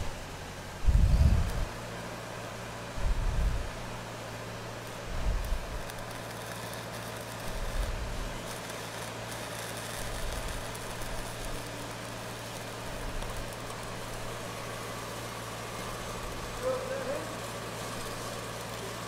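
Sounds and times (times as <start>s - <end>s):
low engine hum: 0.0s - 6.4s
welding arc crackling hiss: 0.0s - 19.0s.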